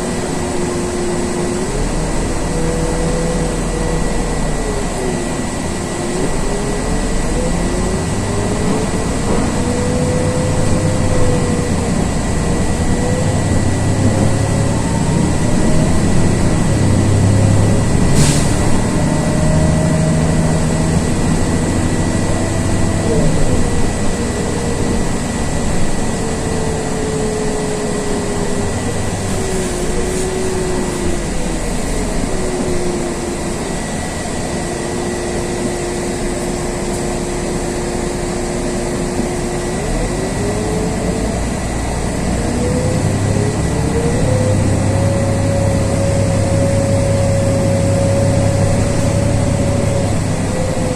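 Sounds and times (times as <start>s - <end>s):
bus drivetrain whine: 0.0s - 50.9s.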